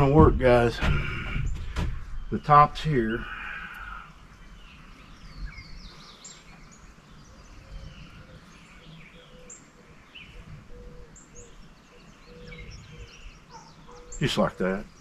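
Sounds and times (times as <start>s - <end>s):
outdoor rumble: 0.0s - 6.7s
songbirds chirping: 0.0s - 15.0s.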